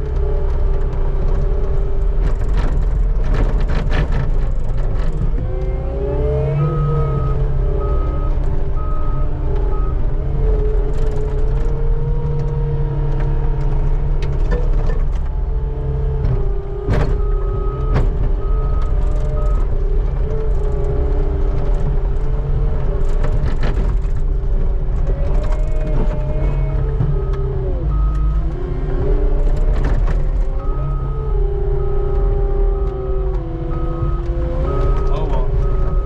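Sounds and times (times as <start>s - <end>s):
skid steer engine under load: 0.0s - 36.0s
reversing alarm beeping: 6.5s - 10.0s, 30.6s - 36.0s.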